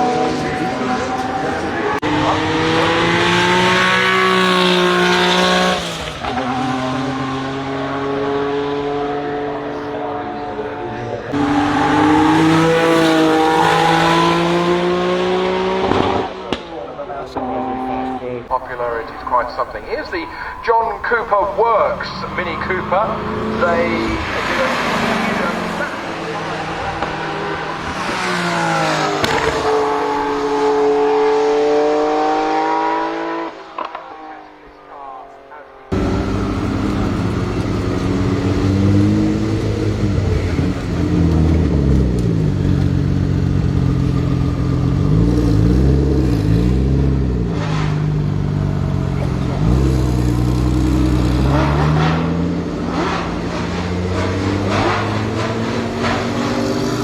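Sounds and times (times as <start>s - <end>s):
car engine revving and shifting: 0.0s - 34.9s, 35.9s - 57.0s
gear change crack: 18.5s - 30.3s, 35.9s - 45.0s, 49.2s - 57.0s.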